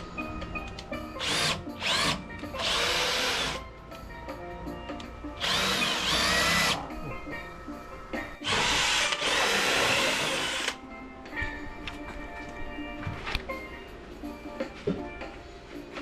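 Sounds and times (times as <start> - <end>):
faint background music: 0.0 - 16.0
power drill driving screws: 1.2 - 3.6, 5.4 - 6.8, 8.4 - 10.8.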